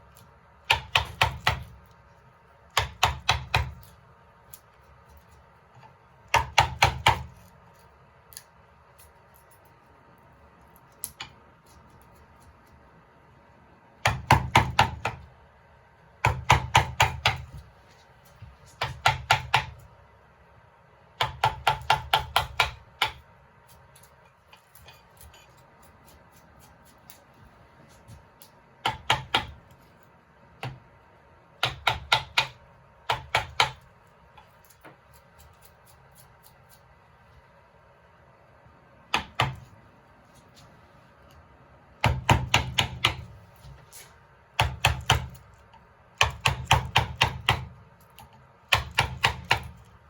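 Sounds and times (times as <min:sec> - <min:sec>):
mallet tapping chisel into wood: 0:00.6 - 0:01.7, 0:02.7 - 0:03.8, 0:06.3 - 0:07.3, 0:14.0 - 0:15.2, 0:16.2 - 0:17.5, 0:18.8 - 0:19.8, 0:21.2 - 0:23.2, 0:28.8 - 0:29.6, 0:31.6 - 0:33.8, 0:39.1 - 0:39.7, 0:42.0 - 0:43.3, 0:46.2 - 0:47.8, 0:48.7 - 0:49.8.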